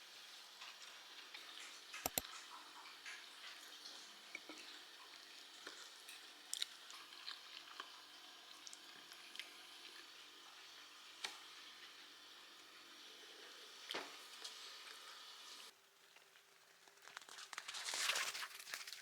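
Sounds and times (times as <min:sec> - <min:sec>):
faint small clicks and taps: 0:01.3 - 0:03.7.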